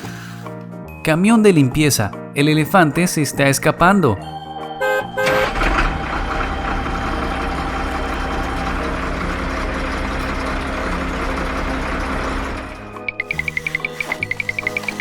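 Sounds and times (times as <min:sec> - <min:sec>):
short musical notes: 0:04.0 - 0:15.0
heavy vehicle engine rumbling: 0:04.9 - 0:15.0.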